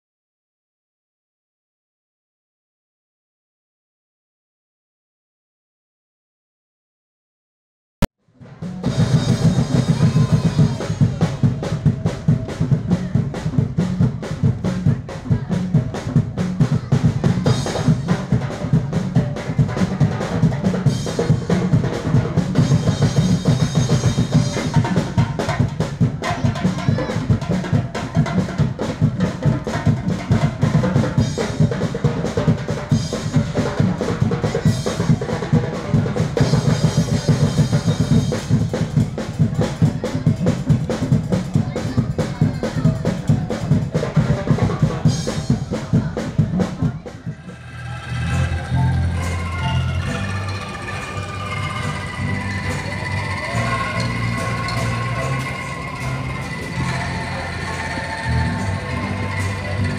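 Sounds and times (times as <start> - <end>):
drums playing fast rhythm: 8.4 - 59.9
metallic ringing: 47.5 - 59.9.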